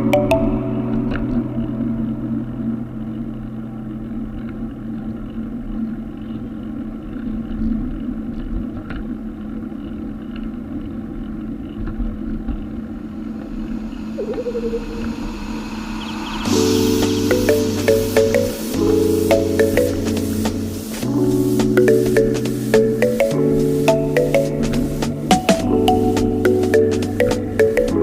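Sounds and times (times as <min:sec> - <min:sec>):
music: 0:00.0 - 0:03.4, 0:16.4 - 0:28.0
low hum: 0:12.7 - 0:20.9.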